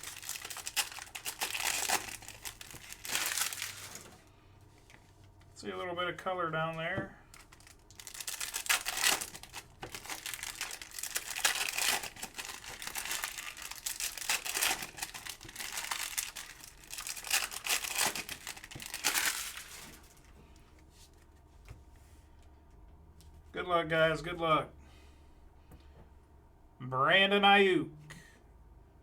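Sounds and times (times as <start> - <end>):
card pack wrappers crinkling: 0.0 - 5.4, 7.3 - 20.3.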